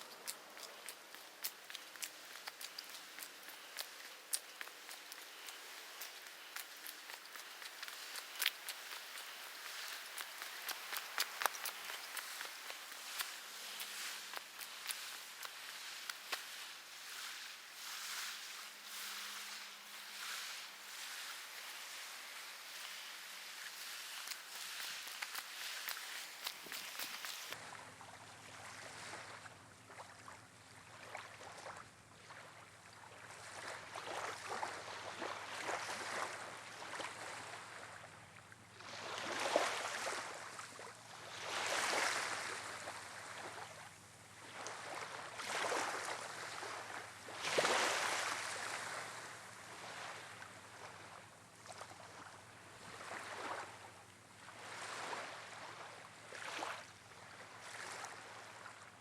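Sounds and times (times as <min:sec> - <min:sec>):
waves washing onto shore: 0:00.0 - 0:27.6, 0:38.8 - 0:43.8, 0:44.4 - 0:58.9
wind: 0:00.0 - 0:59.0.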